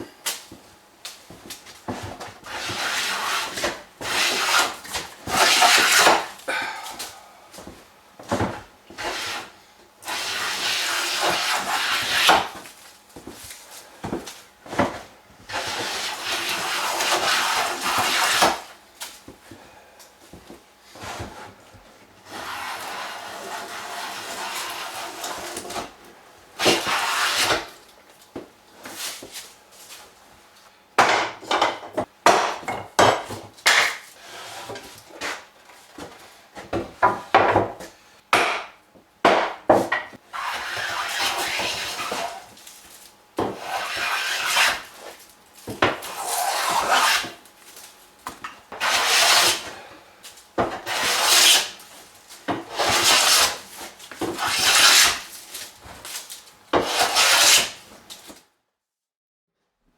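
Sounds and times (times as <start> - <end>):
hand tools scraping wood: 1.4 - 6.4, 8.9 - 13.3, 15.5 - 18.7, 22.2 - 26.0, 26.6 - 27.8, 33.7 - 37.3, 39.7 - 42.8, 43.4 - 47.4, 48.7 - 49.9, 50.6 - 58.4.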